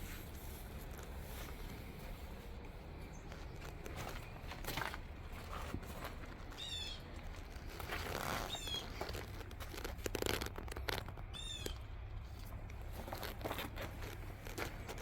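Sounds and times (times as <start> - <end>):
rustling and crinkling: 0.0 - 15.0
bird chirping: 6.5 - 7.1, 8.4 - 9.0, 11.3 - 11.9.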